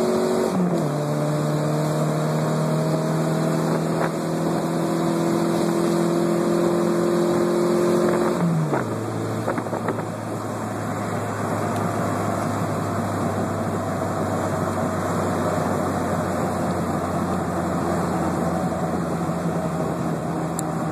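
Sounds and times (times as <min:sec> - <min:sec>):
loud raspy engine exhaust: 0:00.0 - 0:20.9.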